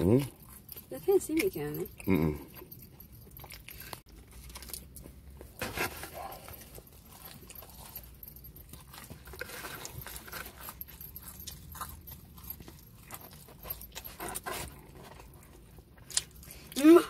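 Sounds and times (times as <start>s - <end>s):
low steady hum: 0.0s - 17.0s
pizza being chewed: 0.0s - 17.0s.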